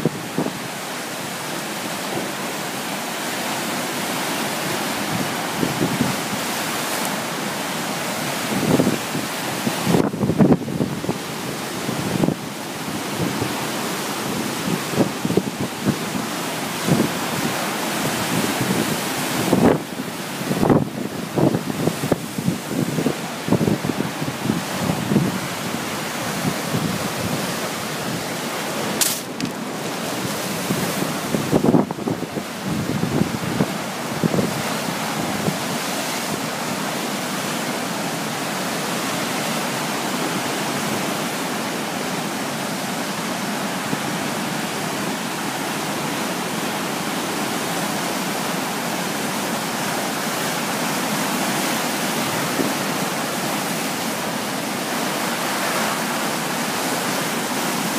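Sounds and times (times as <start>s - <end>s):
strong wind blowing: 4.9s - 6.6s, 8.1s - 36.8s
wind buffeting microphone: 14.2s - 35.7s.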